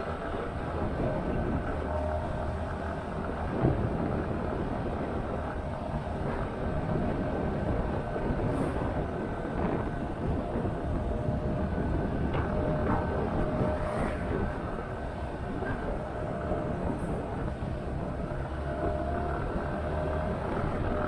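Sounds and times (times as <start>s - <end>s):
wind and road noise: 0.0s - 21.0s.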